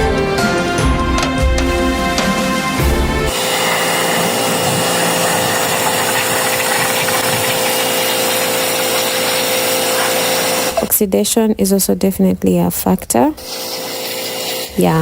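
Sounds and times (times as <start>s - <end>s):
pressure washer motor hum: 0.7s - 10.9s, 13.4s - 15.0s
spraying water hiss: 1.2s - 10.9s, 13.4s - 15.0s.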